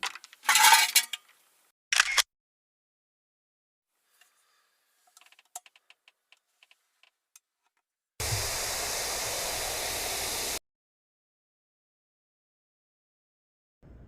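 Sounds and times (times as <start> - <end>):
loud steady hiss: 8.2 - 10.6.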